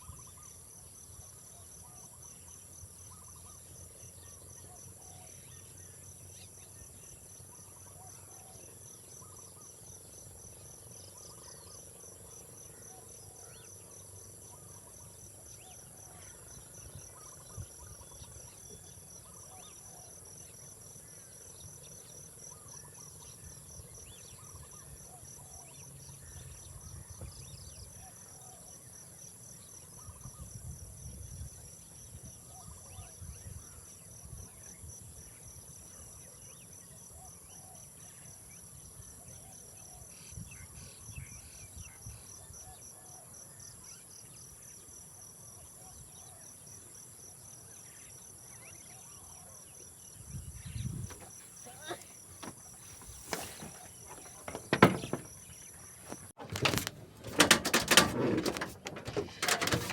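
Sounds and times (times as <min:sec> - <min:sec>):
insects chirring: 0:50.0 - 0:59.9.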